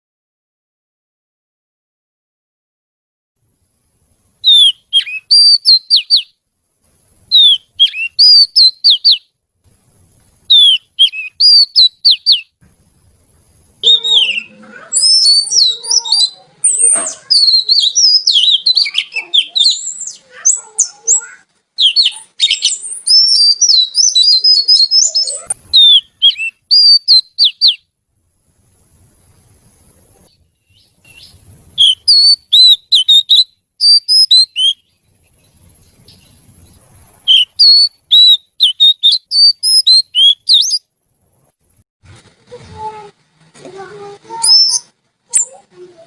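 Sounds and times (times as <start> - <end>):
bird singing whistled song: 4.4 - 6.4, 7.3 - 9.3, 10.5 - 12.5, 13.8 - 27.8, 30.6 - 40.8, 44.4 - 45.6.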